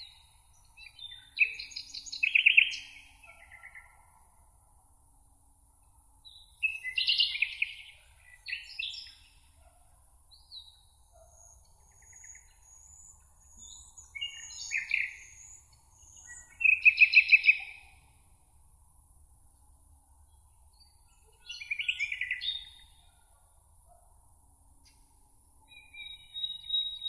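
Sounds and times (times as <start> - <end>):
songbirds singing: 0.0 - 4.0, 6.3 - 9.7, 10.3 - 18.2, 20.2 - 23.2, 25.6 - 27.0.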